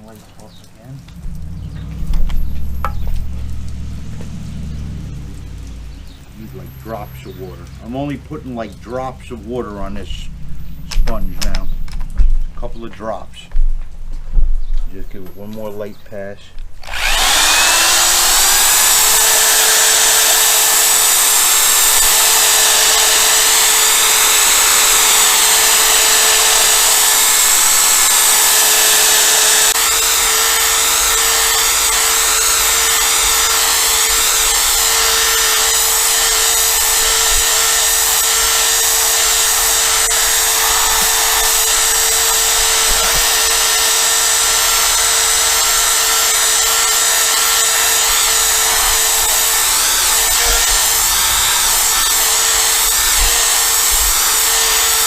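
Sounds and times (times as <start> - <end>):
power drill whining: 16.8 - 55.0.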